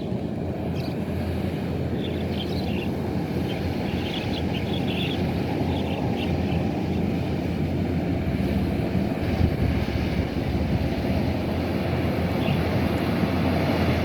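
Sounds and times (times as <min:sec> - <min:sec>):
combine harvester engine running: 0:06.6 - 0:14.0.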